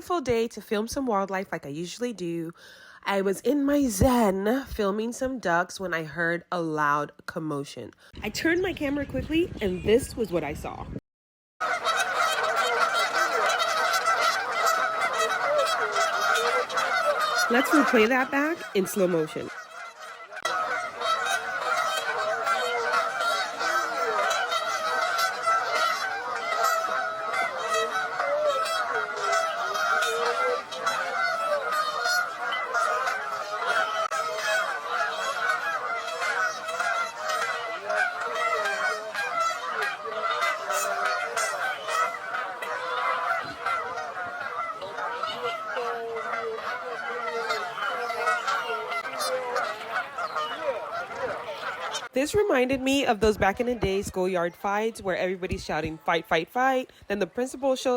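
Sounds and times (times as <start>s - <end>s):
geese honking: 11.6s - 57.9s.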